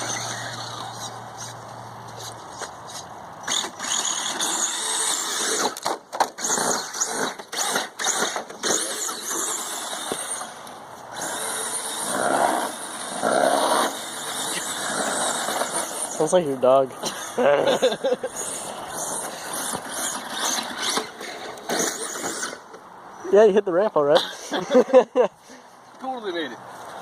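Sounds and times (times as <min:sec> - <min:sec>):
electric motor whining: 0:00.0 - 0:01.6, 0:03.5 - 0:16.4.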